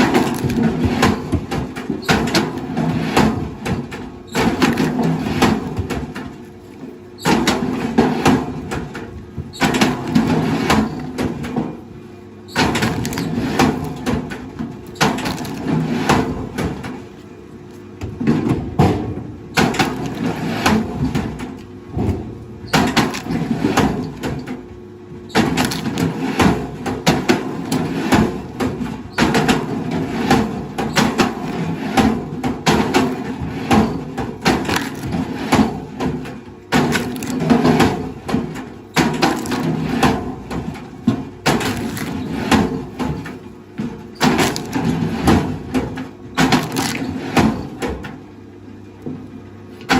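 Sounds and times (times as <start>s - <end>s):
wood cracking and crunching: 0.0s - 3.6s, 12.6s - 16.3s, 22.7s - 24.5s, 25.3s - 26.7s, 34.2s - 47.6s
heavy machinery rumble: 0.0s - 49.9s.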